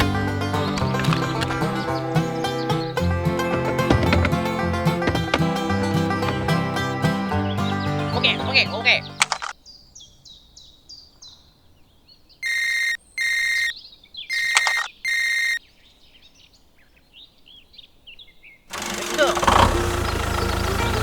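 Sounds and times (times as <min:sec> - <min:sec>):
small birds chirping: 0:00.0 - 0:21.0
short electronic beeps: 0:12.4 - 0:13.7, 0:14.3 - 0:15.6.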